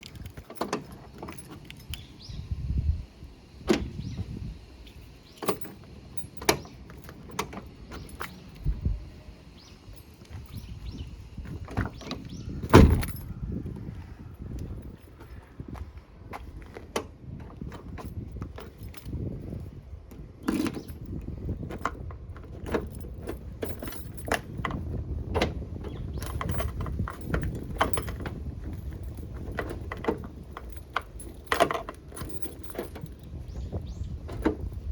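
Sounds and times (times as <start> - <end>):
keys jingling in a lock: 0.0 - 2.8, 3.6 - 34.9
low steady rumble: 0.0 - 34.9
car door latch clicking: 3.6 - 4.3, 5.3 - 8.7, 11.5 - 13.4.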